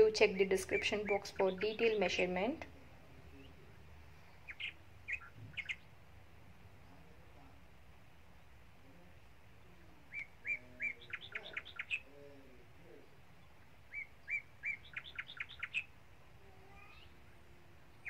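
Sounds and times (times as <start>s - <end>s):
bird singing: 0.0s - 2.3s, 3.3s - 5.9s, 9.6s - 16.0s, 16.6s - 17.3s.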